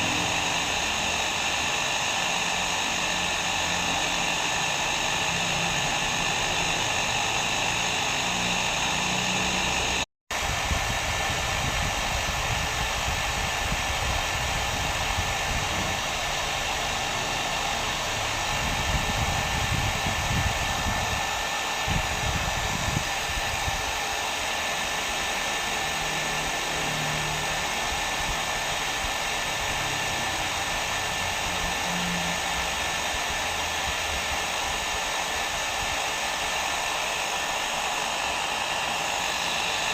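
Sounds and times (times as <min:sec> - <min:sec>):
hair dryer blowing: 0:00.0 - 0:39.9
thin steady whine: 0:00.0 - 0:39.9.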